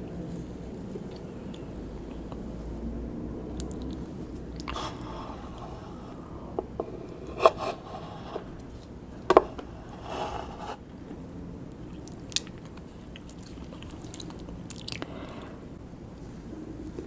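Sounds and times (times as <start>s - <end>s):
soft chewing and scraping: 3.6s - 10.9s, 11.8s - 15.6s.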